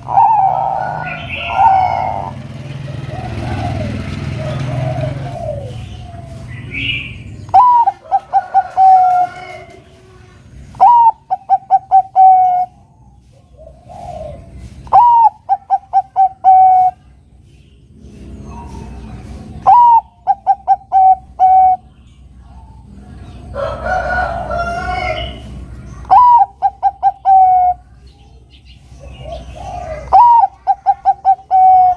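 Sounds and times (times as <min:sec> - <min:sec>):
dove cooing song: 0:00.0 - 0:17.3, 0:18.0 - 0:31.9.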